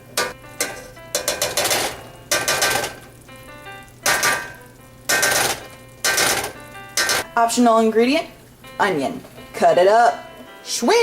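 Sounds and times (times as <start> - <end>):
background music: 0.0 - 11.0
spoon scraping frying pan: 0.2 - 3.1.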